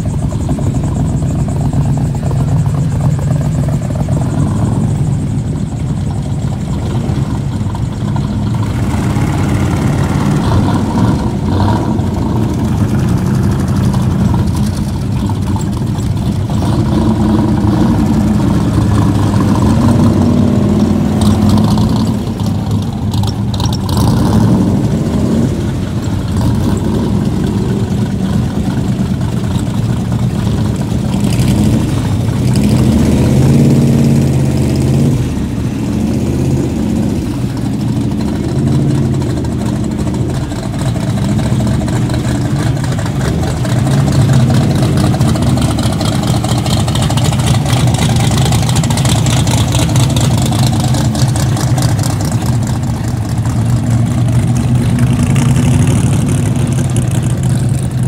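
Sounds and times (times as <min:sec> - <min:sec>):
car engines driving slowly past: 0:00.0 - 0:58.0.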